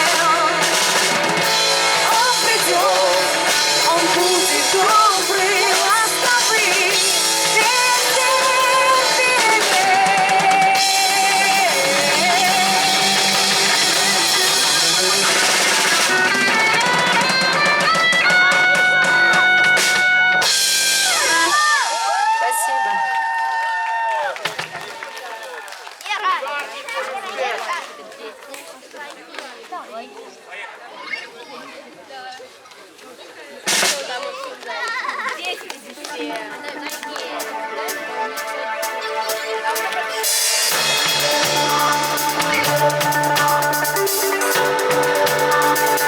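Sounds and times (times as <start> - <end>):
electric guitar: 0.0 - 21.6, 39.2 - 46.0
drum kit: 0.0 - 22.3, 33.7 - 34.2, 36.9 - 46.0
wavering lead melody: 36.8 - 46.0.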